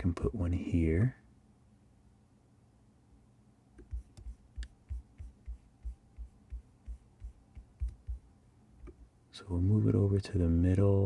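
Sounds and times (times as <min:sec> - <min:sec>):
soft low thumps: 0:03.8 - 0:09.0.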